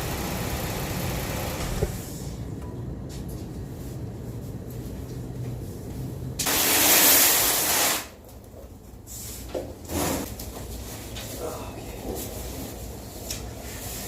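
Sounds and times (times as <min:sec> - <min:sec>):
low engine hum: 0:00.0 - 0:06.4.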